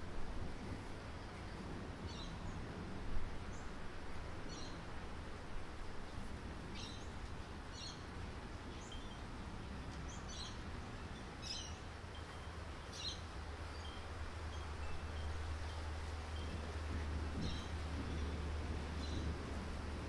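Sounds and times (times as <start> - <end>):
low rumble: 14.8 - 20.0.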